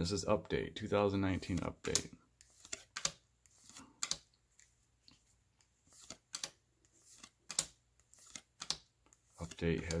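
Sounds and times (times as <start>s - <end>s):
sharp clicks of cards: 1.6s - 4.3s, 5.9s - 6.6s, 7.2s - 10.0s.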